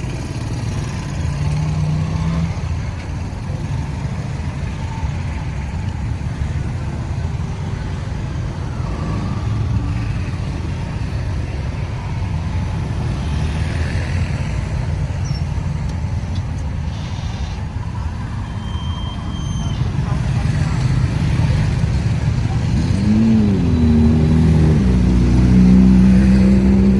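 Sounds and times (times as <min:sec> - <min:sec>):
road traffic: 0:00.0 - 0:26.9.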